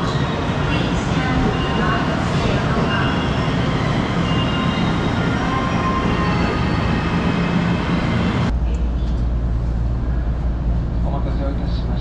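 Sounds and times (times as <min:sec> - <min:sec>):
stationary train humming: 0:00.0 - 0:12.0.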